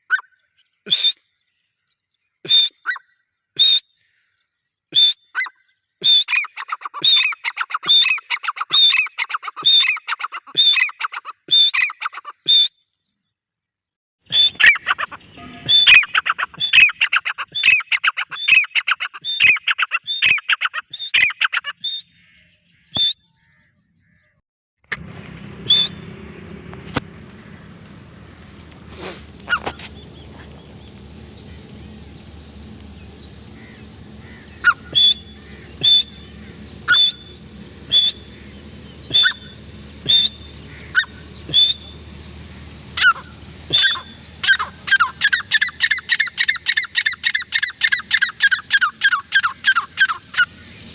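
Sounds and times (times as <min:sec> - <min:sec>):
steady low hum: 0:14.3 - 0:16.8, 0:24.8 - 0:50.9
francolin calling: 0:14.3 - 0:24.4, 0:28.8 - 0:50.9.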